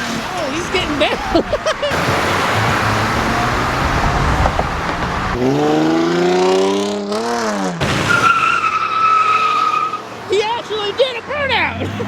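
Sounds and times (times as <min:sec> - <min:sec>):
rush of tire and exhaust noise: 0:00.0 - 0:12.0
tires squealing: 0:00.0 - 0:12.0
car engine revving high: 0:01.8 - 0:09.9.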